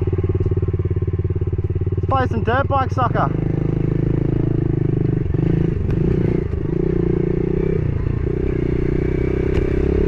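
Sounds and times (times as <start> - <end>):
small motorcycle engine revving: 3.1 - 10.0.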